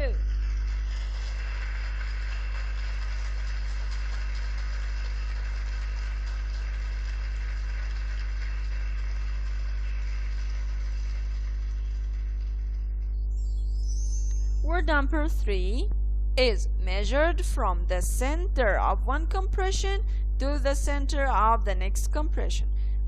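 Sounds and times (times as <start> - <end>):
crowd clapping: 0.0 - 13.0
low electrical hum: 0.0 - 23.0.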